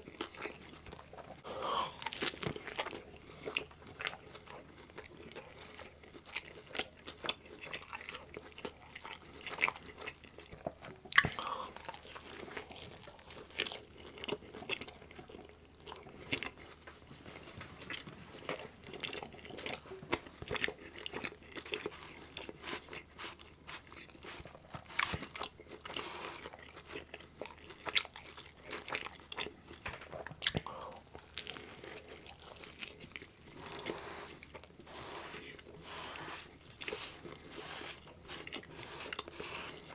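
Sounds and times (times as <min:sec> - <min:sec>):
chewing and biting pizza: 0:00.0 - 0:16.9, 0:17.8 - 0:39.9
crust crunching: 0:19.4 - 0:27.5, 0:29.7 - 0:39.9.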